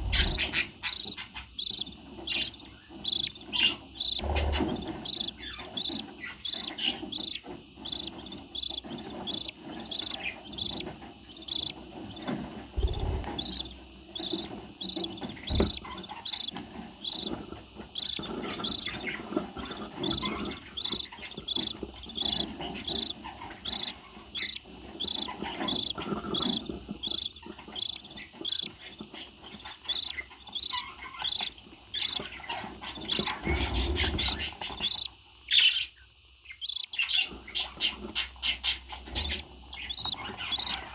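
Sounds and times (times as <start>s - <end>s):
bird chirping: 0.0s - 40.9s
low thump: 12.8s - 13.6s.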